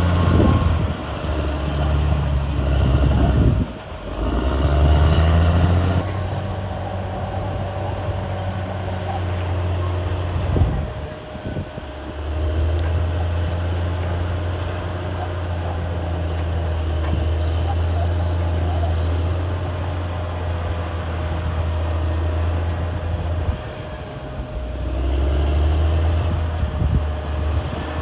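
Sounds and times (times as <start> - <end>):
bulldozer diesel engine running: 0.0 - 28.0.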